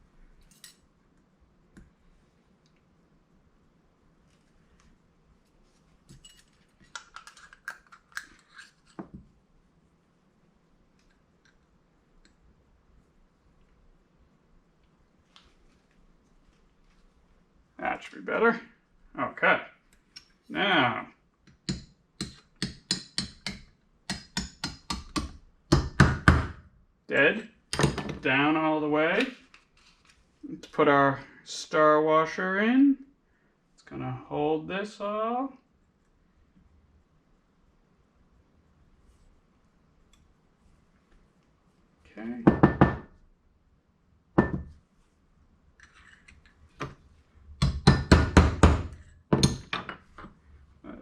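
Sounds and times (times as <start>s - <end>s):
rustling of parts handled: 5.5s - 9.1s
small hammer tapping metal part: 21.5s - 25.9s.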